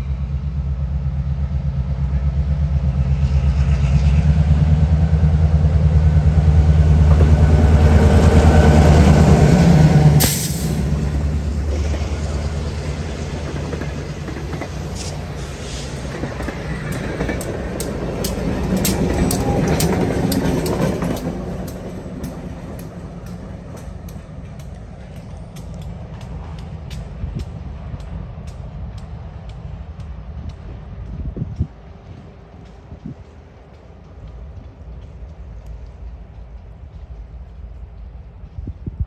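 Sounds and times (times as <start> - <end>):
train coaches rumbling: 0.0 - 39.0
wheels clicking over rail joints: 11.6 - 39.0.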